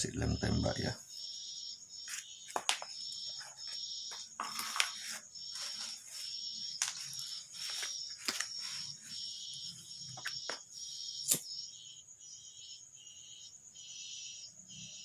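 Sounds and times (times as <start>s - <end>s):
crickets chirping: 0.0s - 15.0s
tool handling clicks and knocks: 6.8s - 8.5s.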